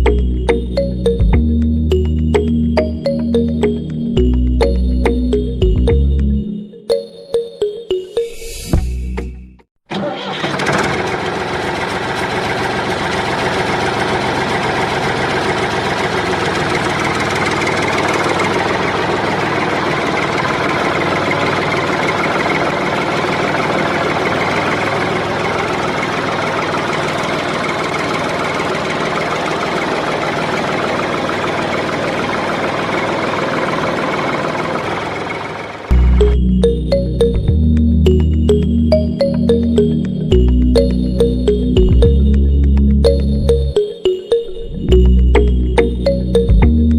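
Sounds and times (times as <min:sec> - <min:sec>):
heavy machine engine droning: 0:10.0 - 0:43.8.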